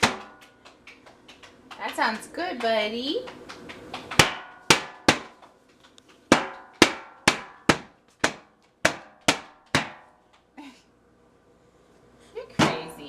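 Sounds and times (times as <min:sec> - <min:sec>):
child striking a drum: 0:00.0 - 0:00.5, 0:04.1 - 0:05.4, 0:06.3 - 0:10.1.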